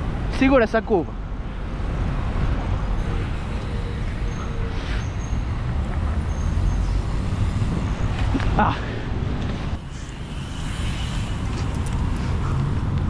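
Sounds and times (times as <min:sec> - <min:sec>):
road and traffic noise: 0:00.0 - 0:13.0
wind on microphone: 0:01.1 - 0:13.0.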